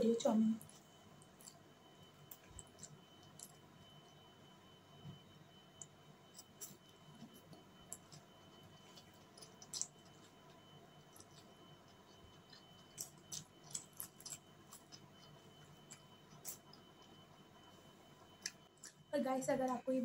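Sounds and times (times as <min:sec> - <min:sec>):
person chewing noodles: 0:00.6 - 0:04.2, 0:05.6 - 0:19.1
wet clicks of fork eating: 0:09.4 - 0:10.0.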